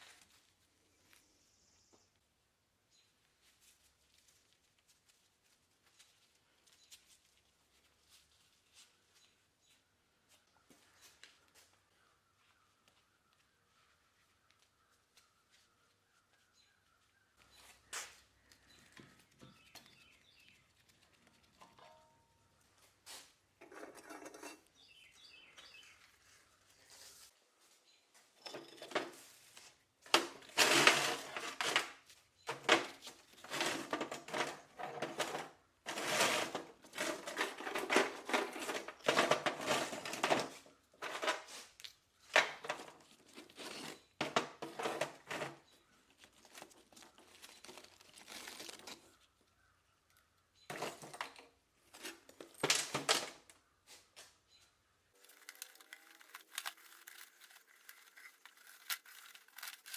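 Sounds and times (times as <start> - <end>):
material crinkling and tearing: 46.1 - 49.3, 55.2 - 59.9.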